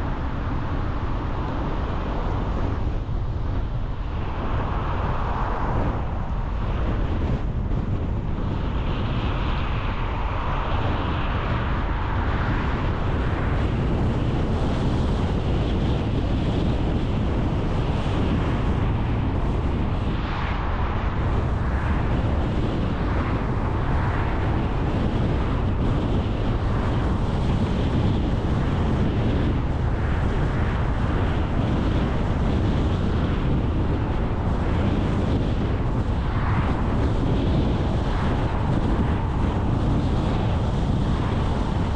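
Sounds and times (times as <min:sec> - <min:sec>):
car road and wind noise: 0:00.0 - 0:41.9.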